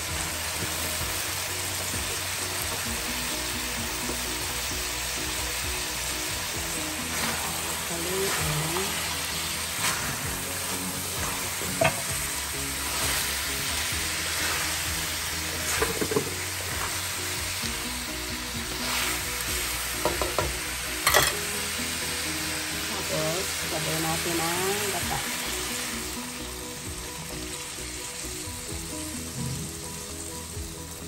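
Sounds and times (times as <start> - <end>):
food sizzling in a pan: 0.0 - 31.0
utensil scraping the pan: 6.9 - 17.1.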